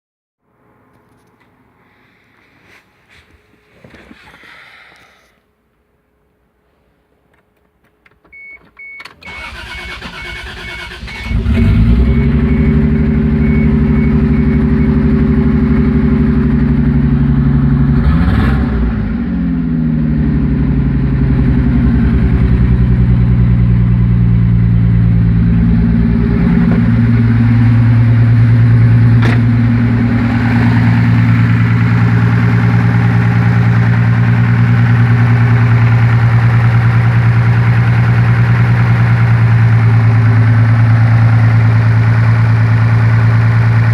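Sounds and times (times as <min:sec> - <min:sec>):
car engine cranking: 0:09.1 - 0:12.2
car engine idling with knock: 0:22.2 - 0:43.9.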